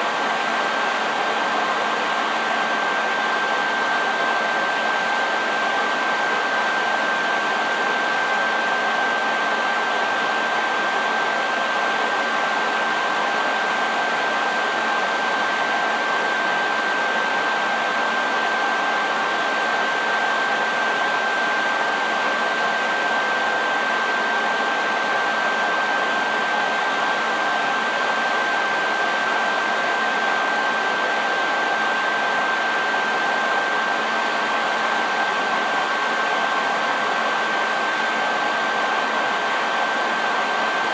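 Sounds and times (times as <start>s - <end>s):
hair dryer running: 18.4s - 40.9s.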